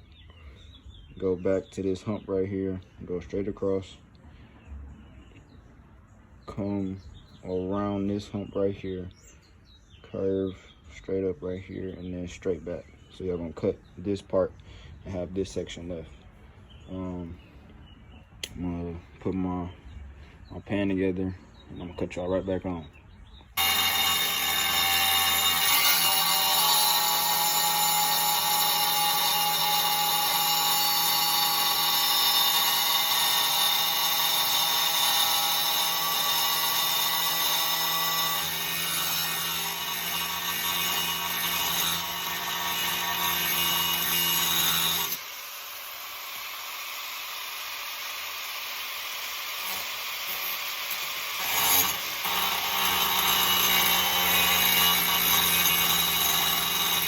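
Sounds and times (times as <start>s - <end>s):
cutoff wheel grinding steel: 23.6s - 57.0s.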